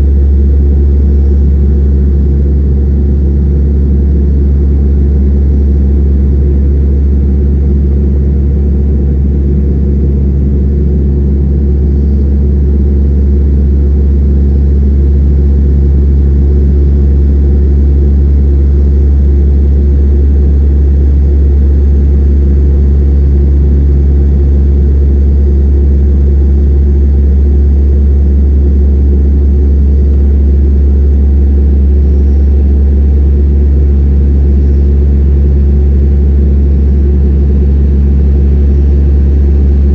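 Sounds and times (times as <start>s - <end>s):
turboprop engine drone: 0.0s - 39.9s.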